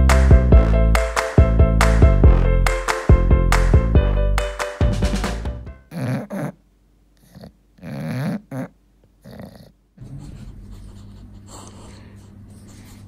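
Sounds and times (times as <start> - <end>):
dog making throaty sounds: 5.9 - 6.6.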